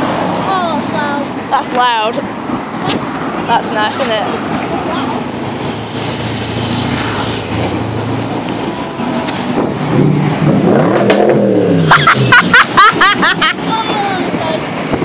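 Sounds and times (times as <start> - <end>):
car engine revving: 4.6 - 14.8.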